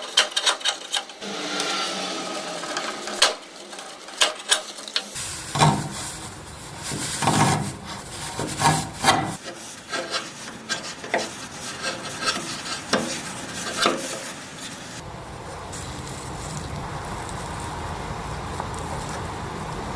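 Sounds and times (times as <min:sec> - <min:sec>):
hand tool scraping wood: 0:00.0 - 0:15.0.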